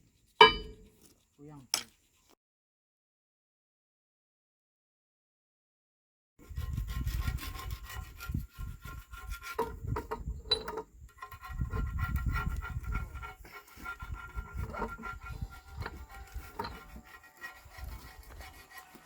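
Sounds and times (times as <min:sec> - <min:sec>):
scraping and rubbing strokes: 0:00.0 - 0:02.4, 0:06.4 - 0:10.3, 0:11.1 - 0:19.0.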